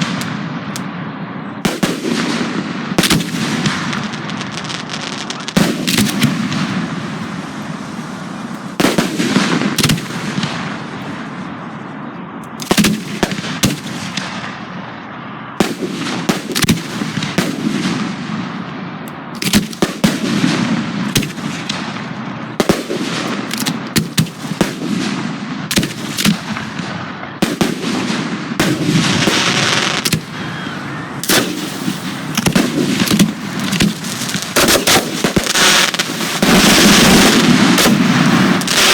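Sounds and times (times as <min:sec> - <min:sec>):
fireworks launching and bursting: 0:00.0 - 0:38.9
rumbling firework tails: 0:19.6 - 0:38.9.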